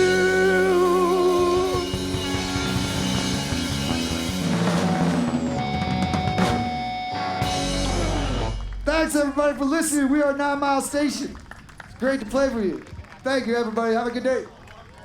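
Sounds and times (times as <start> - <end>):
electric guitar: 0.0 - 9.3
drums: 0.0 - 12.5.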